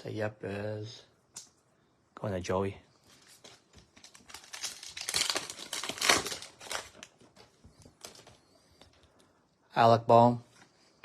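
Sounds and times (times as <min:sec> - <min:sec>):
wrapper torn open and crinkled: 0:03.4 - 0:07.2.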